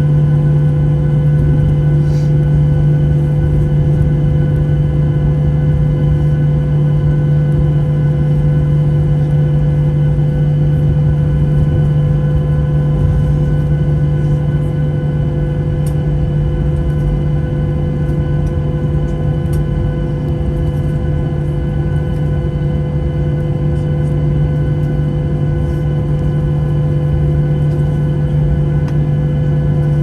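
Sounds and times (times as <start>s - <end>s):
jet engine cabin drone: 0.0s - 30.0s.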